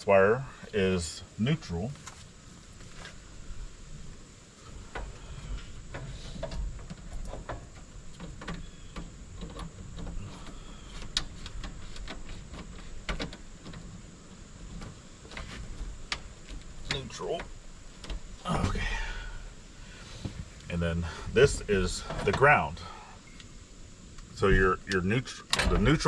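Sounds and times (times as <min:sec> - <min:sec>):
low background rumble: 0:02.3 - 0:26.0.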